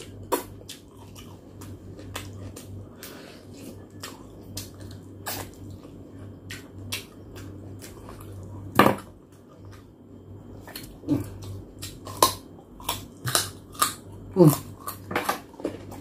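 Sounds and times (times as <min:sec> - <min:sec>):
wet chewing and lip-smacking: 0:00.0 - 0:02.9.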